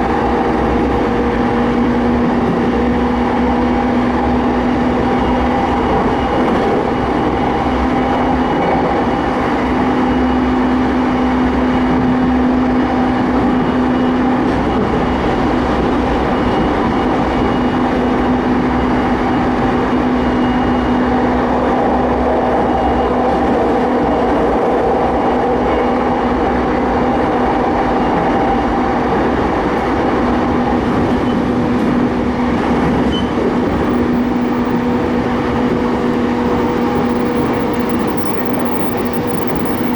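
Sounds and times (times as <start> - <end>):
train equipment hum: 0.0 - 13.6, 26.2 - 39.9
train wheels rumbling on track: 0.0 - 39.9.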